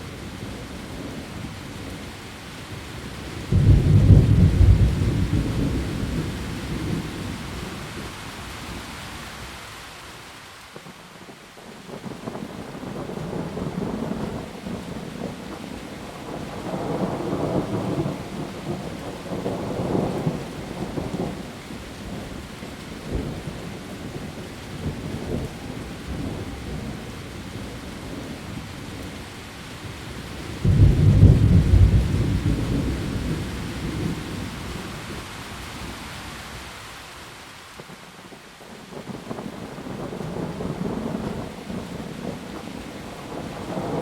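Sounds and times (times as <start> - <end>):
heavy rain on leaves: 0.0 - 44.0
loud thunderclap: 3.5 - 7.0, 30.6 - 34.5
thunder rumbling: 3.5 - 8.0, 30.6 - 36.0, 38.7 - 44.0.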